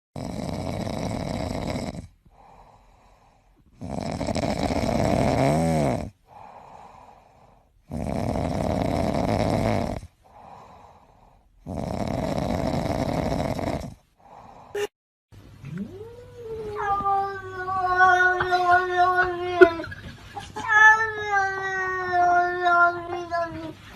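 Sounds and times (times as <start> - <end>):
cat snoring: 0.2 - 14.6
faint breathing: 2.2 - 3.8, 6.2 - 7.9, 10.1 - 11.7, 14.0 - 14.9.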